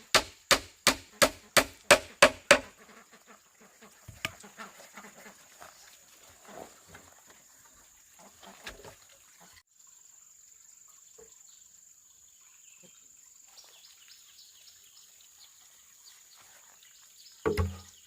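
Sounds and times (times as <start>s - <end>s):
soft knocks: 17.5s - 17.8s.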